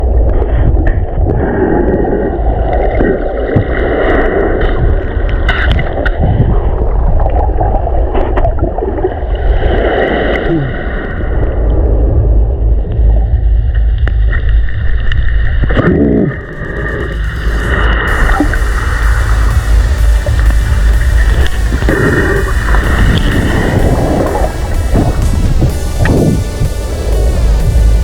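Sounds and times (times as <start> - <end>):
sea water churning and gurgling: 0.0 - 28.0
waves rumbling: 0.0 - 28.0.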